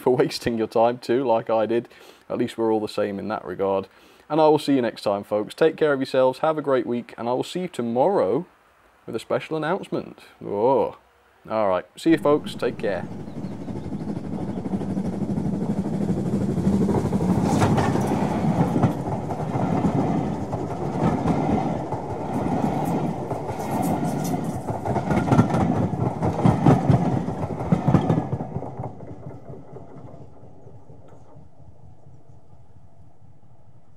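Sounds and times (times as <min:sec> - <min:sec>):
train passing rumble: 0:12.0 - 0:33.9
wheels clicking over rail joints: 0:12.1 - 0:32.0.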